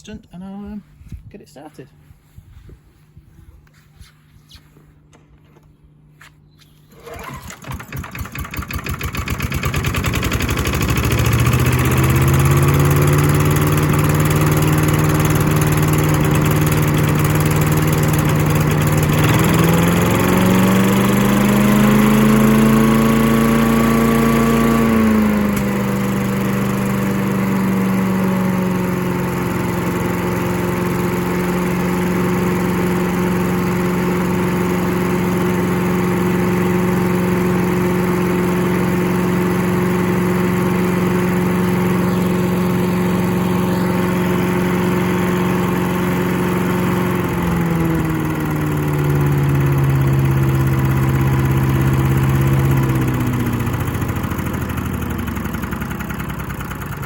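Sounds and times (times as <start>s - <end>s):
small engine running: 6.8s - 57.0s.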